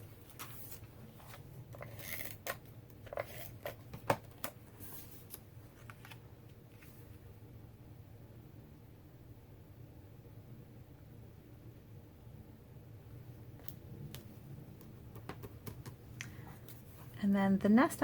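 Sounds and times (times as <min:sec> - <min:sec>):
paper rustling: 0:00.2 - 0:07.0.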